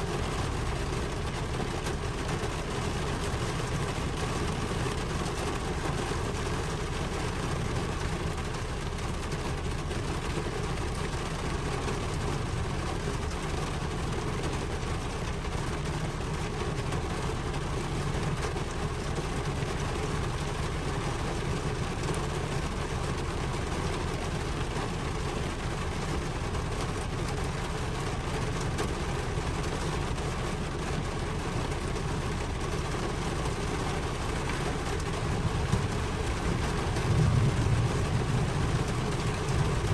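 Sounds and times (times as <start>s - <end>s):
steady rain: 0.0s - 39.9s
deep low rumble: 33.9s - 39.9s.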